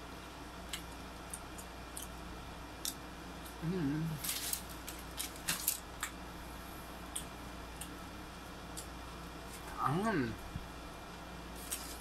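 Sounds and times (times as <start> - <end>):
person humming: 3.6 - 4.3.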